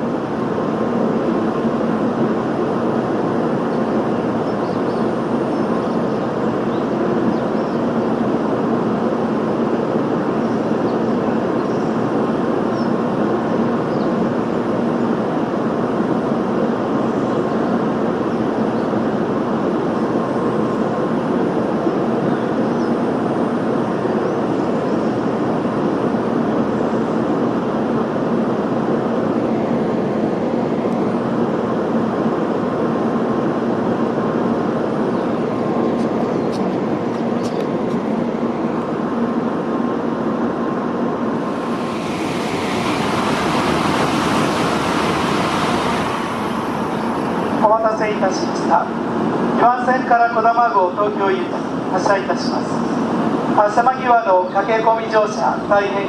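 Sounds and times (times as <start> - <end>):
standing train mechanical whir: 33.9 - 49.6.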